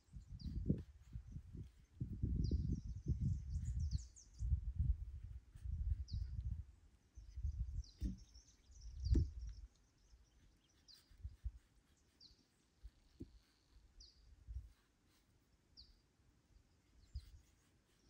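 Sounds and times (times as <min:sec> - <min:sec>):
small birds chirping: 0:00.0 - 0:18.0
sharp knock: 0:08.0 - 0:08.2.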